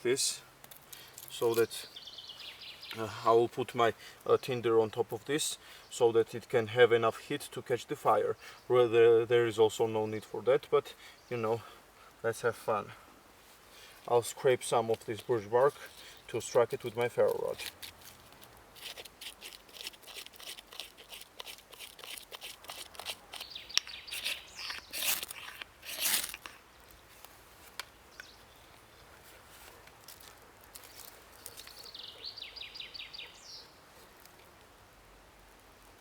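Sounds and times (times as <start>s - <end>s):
knife scraping bark: 15.0s - 26.6s.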